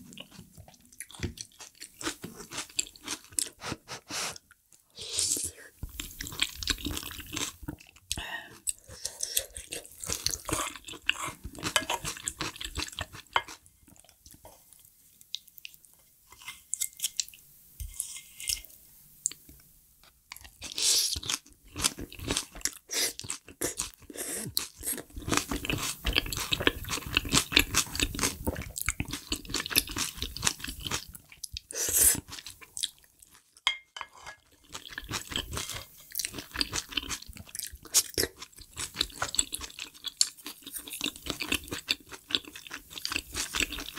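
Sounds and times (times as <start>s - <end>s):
wet chewing with crunches: 20.3s - 33.4s, 34.5s - 43.9s.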